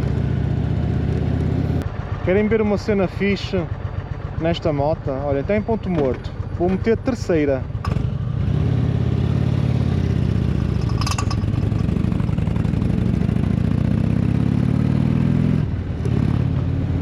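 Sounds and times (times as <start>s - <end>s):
motorcycle engine pulling away: 7.8s - 17.0s.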